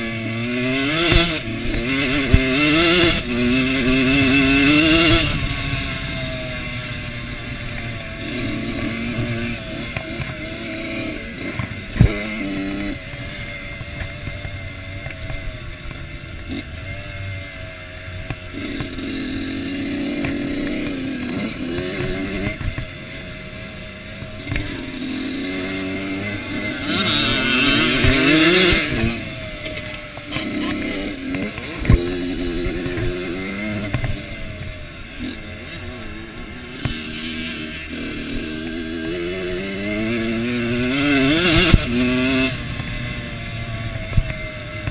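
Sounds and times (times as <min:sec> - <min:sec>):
motocross bike engine revving: 0:00.0 - 0:44.9.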